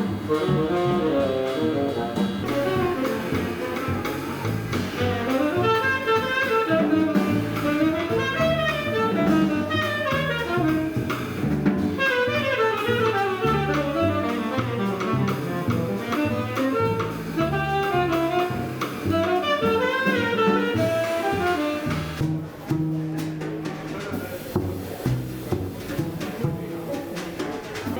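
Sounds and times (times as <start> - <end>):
saxophone playing quick runs: 0.0 - 11.2, 12.0 - 22.2
double bass line: 0.0 - 27.9
drum kit: 0.0 - 27.9.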